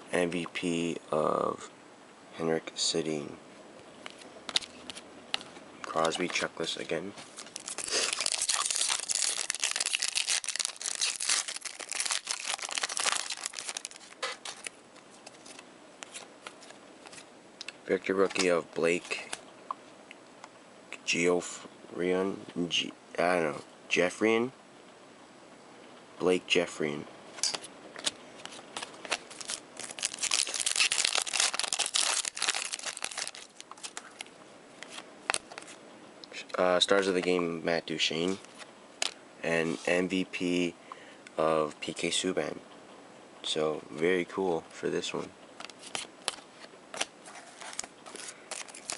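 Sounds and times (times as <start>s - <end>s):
cards being handled: 4.0s - 19.4s, 27.4s - 35.8s, 45.6s - 48.9s
plastic wrapper crinkling: 7.4s - 16.2s, 28.8s - 34.3s, 47.0s - 48.9s.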